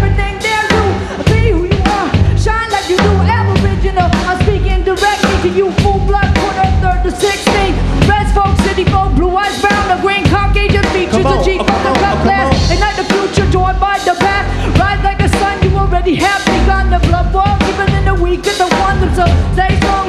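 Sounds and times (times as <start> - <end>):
live band playing: 0.0 - 20.0.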